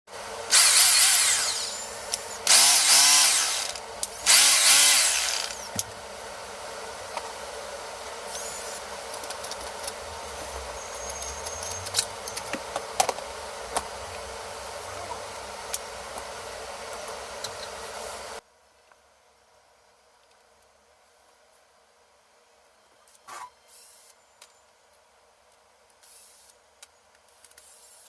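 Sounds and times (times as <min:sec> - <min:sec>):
hammer drill bursts: 0:00.5 - 0:05.7.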